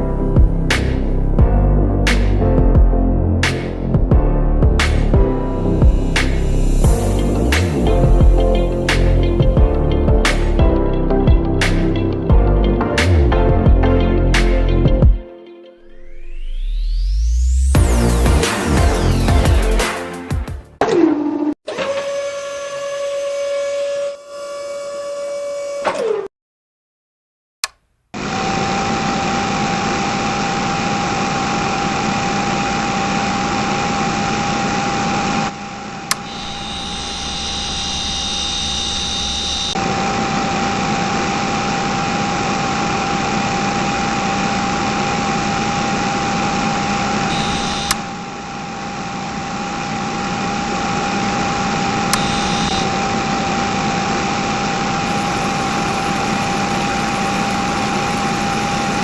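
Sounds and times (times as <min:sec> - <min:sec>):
small motor whining: 0:31.0 - 0:59.0
motor click: 0:36.1 - 0:39.8, 0:47.3 - 0:48.3, 0:52.1 - 0:52.9.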